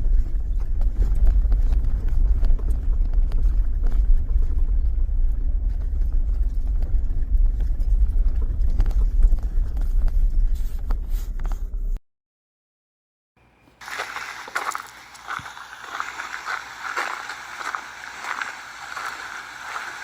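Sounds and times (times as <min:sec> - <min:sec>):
car road rumble: 0:00.0 - 0:12.0.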